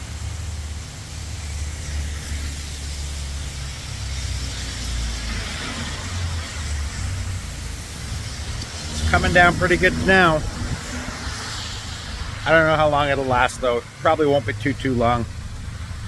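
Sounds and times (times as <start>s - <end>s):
heavy rain hissing: 0.0s - 16.0s
wind buffeting microphone: 7.0s - 13.8s.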